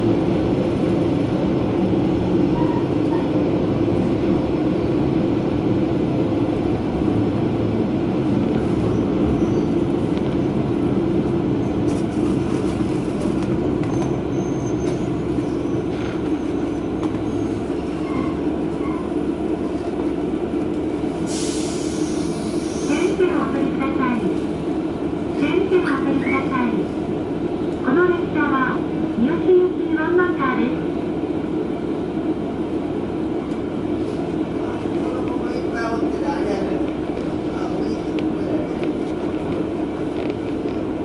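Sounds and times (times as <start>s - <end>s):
railcar engine and rail rumble: 0.0s - 41.0s.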